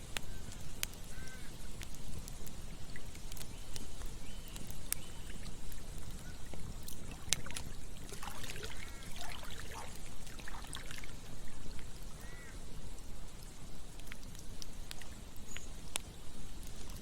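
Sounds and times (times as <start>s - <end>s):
campfire crackling and popping: 0.0s - 17.0s
short bird calls: 1.1s - 1.5s, 8.7s - 9.4s, 12.2s - 12.6s
stream rushing: 7.1s - 11.2s.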